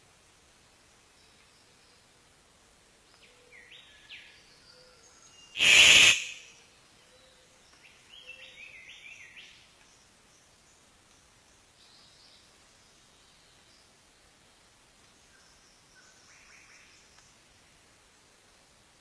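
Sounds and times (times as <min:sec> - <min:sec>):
burst of harsh noise: 0:05.6 - 0:06.5.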